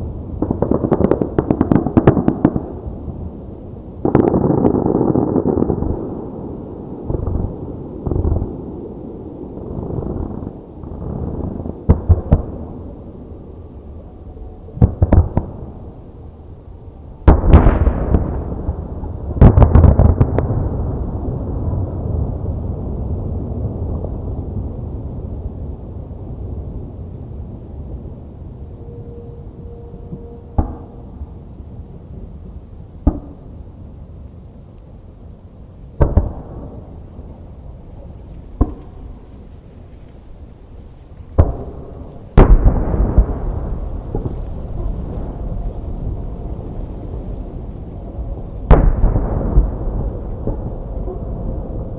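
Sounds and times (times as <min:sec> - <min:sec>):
low rumble of echoing explosions: 0:00.0 - 0:51.9
firework shells booming: 0:30.2 - 0:31.4, 0:36.0 - 0:37.3, 0:38.3 - 0:39.5, 0:41.2 - 0:51.9.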